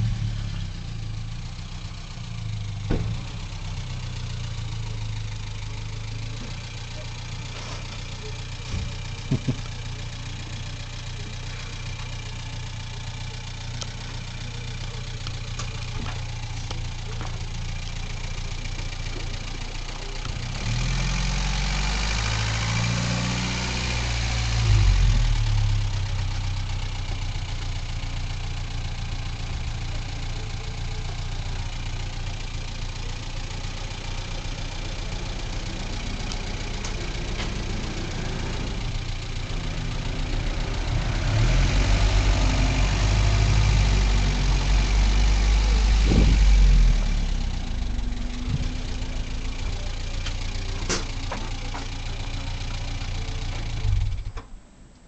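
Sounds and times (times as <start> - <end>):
car engine at low revs: 0.0 - 55.0.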